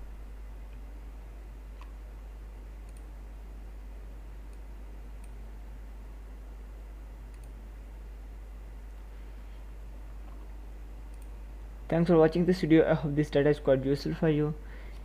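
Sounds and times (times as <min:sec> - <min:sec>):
electrical hum and hiss: 0:00.0 - 0:15.0
computer mouse clicks: 0:02.8 - 0:03.1, 0:04.5 - 0:05.4, 0:07.3 - 0:07.6, 0:11.1 - 0:11.4.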